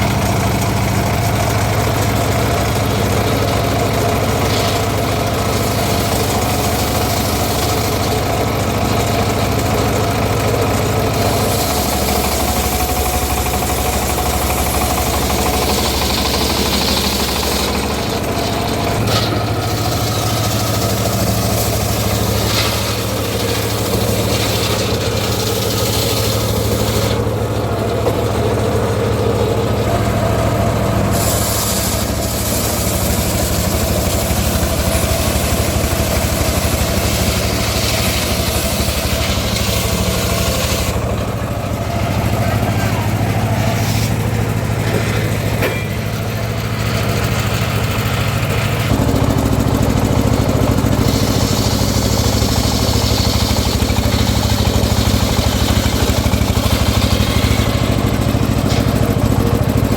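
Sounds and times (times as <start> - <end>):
engine-driven sawmill running: 0.0 - 59.9.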